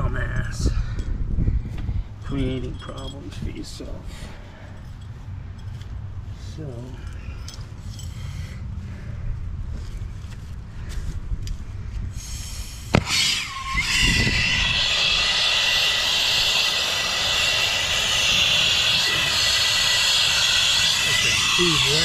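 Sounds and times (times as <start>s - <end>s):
torch flame hissing: 12.2s - 22.0s.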